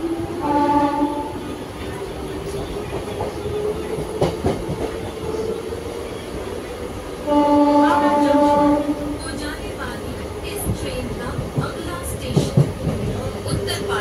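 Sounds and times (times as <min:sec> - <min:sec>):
train rumbling with motor whine: 0:00.0 - 0:14.0
train horn: 0:00.4 - 0:01.4, 0:07.2 - 0:09.1.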